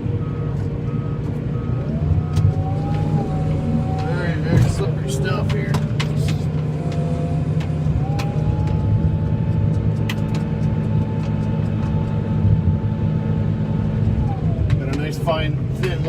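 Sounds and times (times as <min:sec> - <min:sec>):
snowplow engine under load: 0:00.0 - 0:16.0
sharp clicks: 0:05.4 - 0:12.2.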